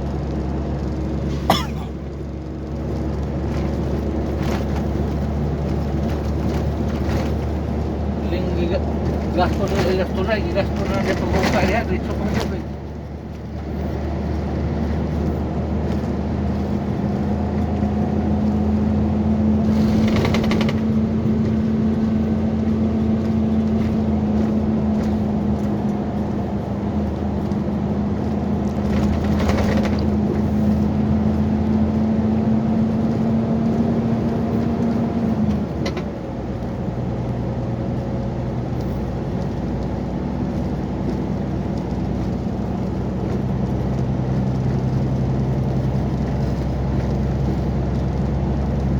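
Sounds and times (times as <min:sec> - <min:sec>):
excavator diesel engine running: 0:00.0 - 0:31.9
engine noisy bursts: 0:19.6 - 0:21.4.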